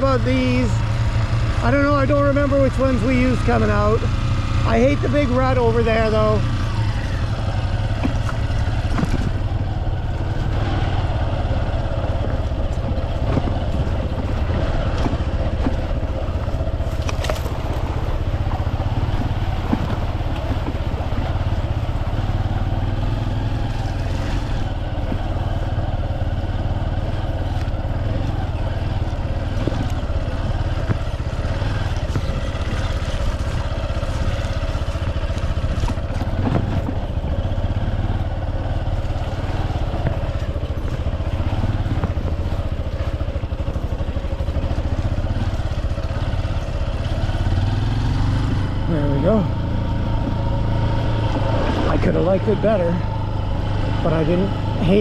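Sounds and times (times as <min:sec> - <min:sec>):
motorcycle engine running: 0:00.0 - 0:55.0
motorcycle knocks and clatter: 0:07.3 - 0:48.8, 0:49.6 - 0:52.0.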